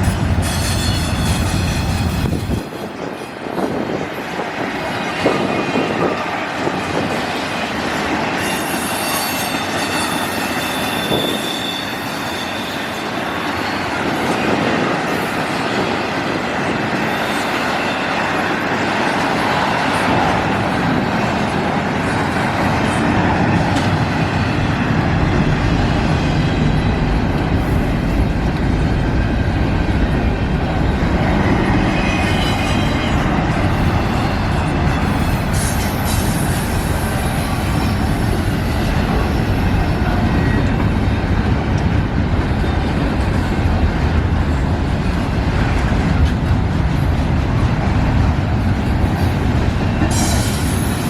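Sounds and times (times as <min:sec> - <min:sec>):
freight train rolling past: 0:00.0 - 0:51.0
wheel squeals: 0:08.4 - 0:13.7.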